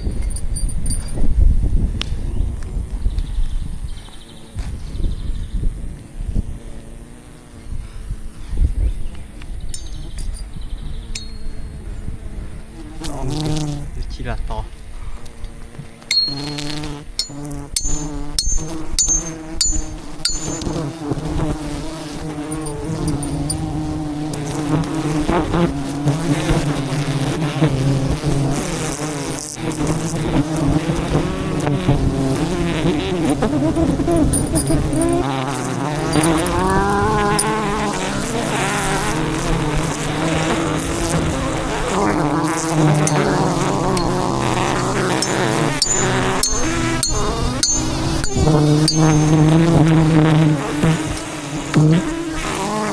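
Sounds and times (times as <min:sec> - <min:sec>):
bees buzzing: 0:03.9 - 0:52.9
sharp metallic knocks: 0:09.8 - 0:10.5, 0:16.1 - 0:21.1, 0:22.4 - 0:23.6, 0:43.0 - 0:50.2.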